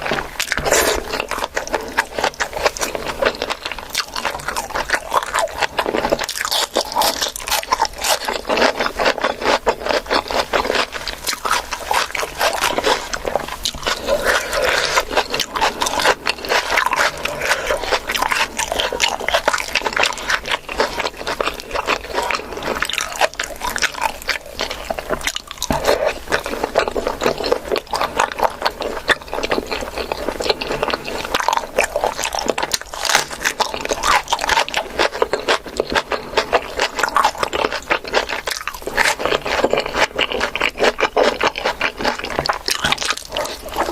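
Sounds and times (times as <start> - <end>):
chewing and crunching food: 0.0 - 43.9.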